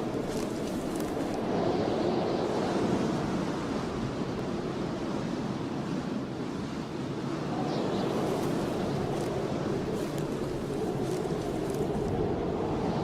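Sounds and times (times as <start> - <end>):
starch crunching: 0.0 - 1.4, 8.1 - 12.2.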